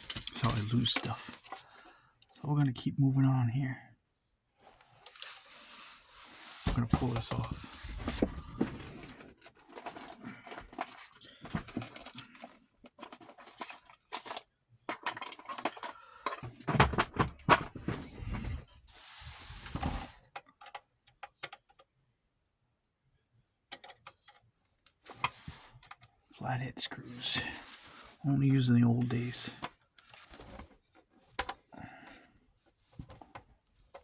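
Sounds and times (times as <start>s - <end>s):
parts clattering: 0.0s - 1.8s, 4.6s - 20.8s
small plastic and metal parts rattling: 0.0s - 1.8s, 4.6s - 5.8s, 6.6s - 18.8s.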